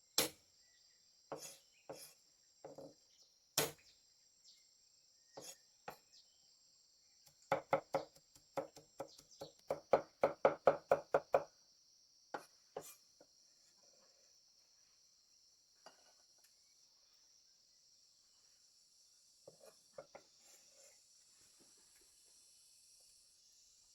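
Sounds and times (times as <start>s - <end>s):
crickets trilling: 0.4s - 23.9s
knife chopping on cutting board: 3.6s - 3.8s, 7.3s - 11.5s.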